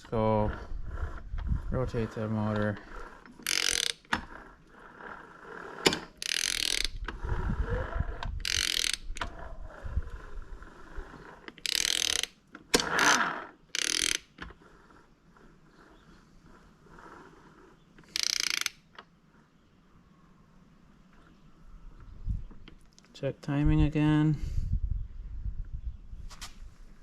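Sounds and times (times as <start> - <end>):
ratchet wrench clicking: 3.3 - 4.3, 5.9 - 7.2, 8.3 - 9.3, 11.5 - 14.4, 18.0 - 18.8.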